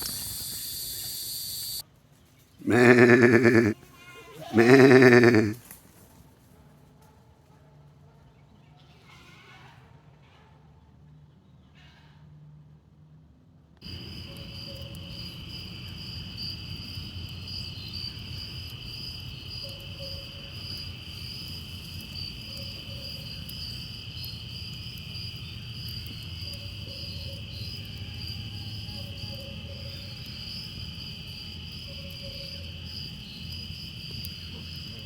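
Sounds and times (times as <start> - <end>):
insects trilling: 0.0 - 1.8, 2.6 - 3.8, 4.4 - 5.6, 13.8 - 35.0.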